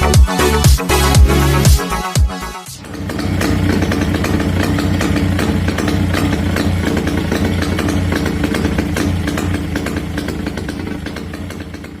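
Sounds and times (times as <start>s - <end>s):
two-stroke twin engine running: 2.7s - 12.0s.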